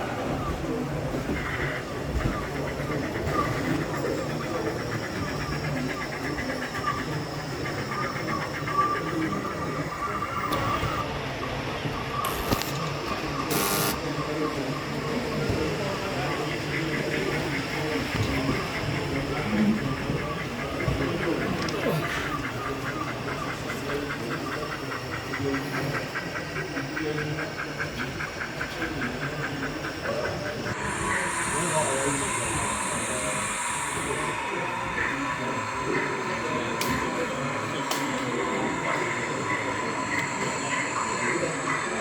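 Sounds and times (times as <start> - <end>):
mixed background noise: 0.0 - 42.0
model train running: 0.0 - 42.0
steam hissing: 15.7 - 42.0.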